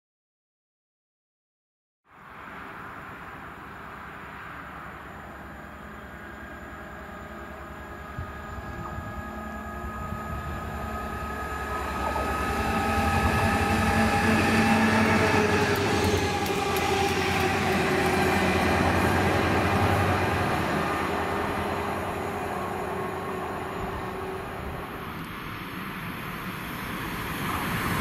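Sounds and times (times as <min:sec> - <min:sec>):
train rumbling past: 0:02.1 - 0:28.0
steady high tones: 0:04.5 - 0:25.6.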